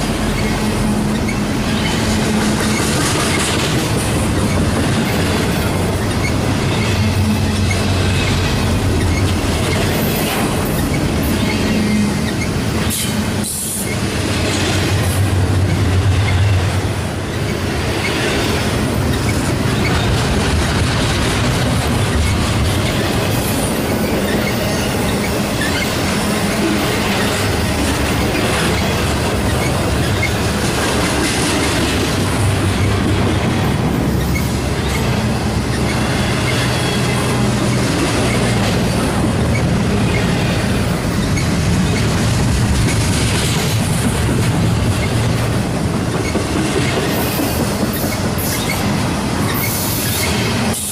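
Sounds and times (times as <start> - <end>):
train wheels rumbling on rails: 0.0 - 50.9
wheel squeal: 6.0 - 14.0, 22.1 - 27.5, 28.2 - 31.1, 47.2 - 50.9.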